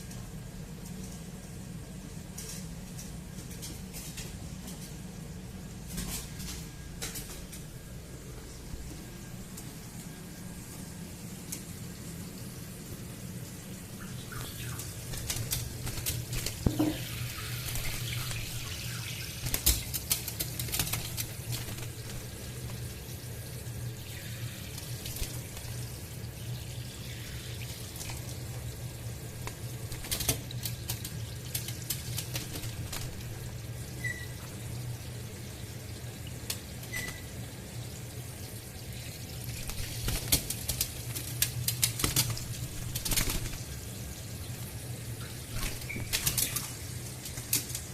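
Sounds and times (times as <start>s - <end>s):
parrots splashing and flapping: 14.2s - 23.0s, 24.2s - 26.0s, 29.3s - 34.6s, 39.4s - 44.1s, 45.2s - 47.9s
tap water running into sink: 14.3s - 47.9s.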